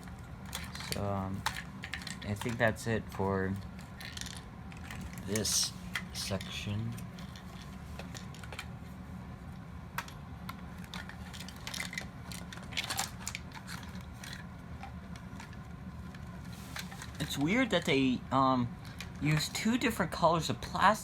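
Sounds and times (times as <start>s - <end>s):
steady low hum: 0.0s - 21.0s
plastic toy parts clicking: 0.5s - 2.8s, 4.0s - 6.6s, 10.8s - 14.4s.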